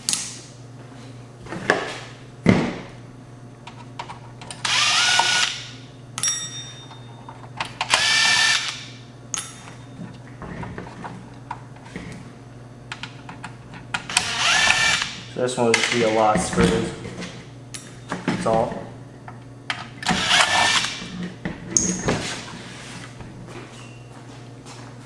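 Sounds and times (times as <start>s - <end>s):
power screwdriver whine: 4.6s - 5.7s, 7.9s - 8.9s, 14.1s - 15.2s, 20.0s - 21.1s.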